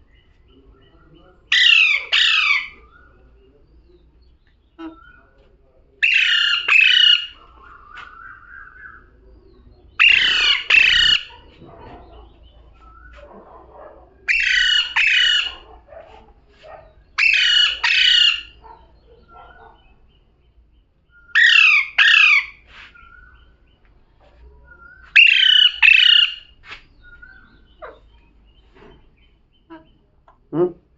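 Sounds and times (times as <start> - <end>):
parrot chatter: 0.7 - 3.3, 6.0 - 20.3, 21.2 - 23.5, 24.7 - 28.2.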